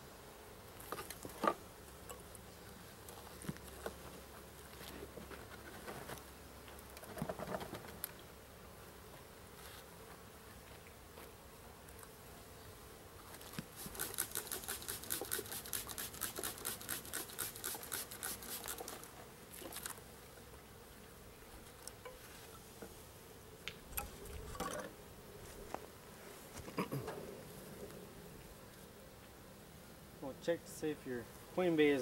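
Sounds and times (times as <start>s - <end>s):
honey bees buzzing: 0.0s - 32.0s
scraping or rattling strokes: 13.8s - 19.0s.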